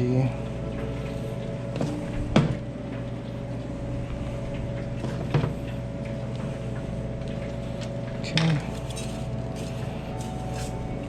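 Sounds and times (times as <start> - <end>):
kitchen equipment humming: 0.0 - 11.0.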